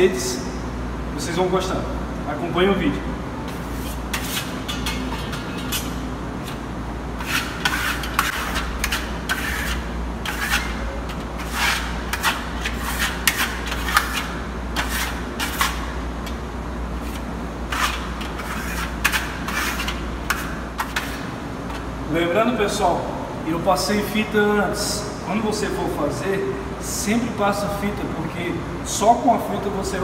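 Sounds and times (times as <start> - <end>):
low steady hum: 0.0 - 30.0
trowel scraping on wall: 3.5 - 6.6, 7.2 - 16.0, 17.0 - 21.8.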